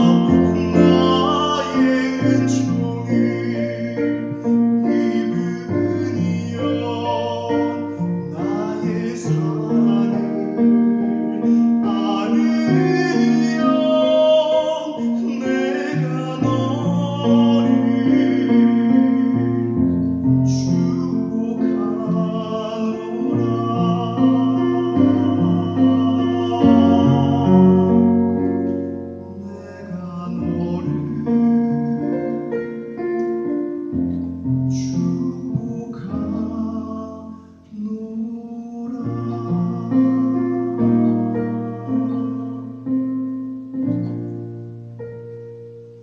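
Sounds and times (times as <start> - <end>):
person singing: 0.0 - 44.3
held keyboard chords: 0.0 - 46.0.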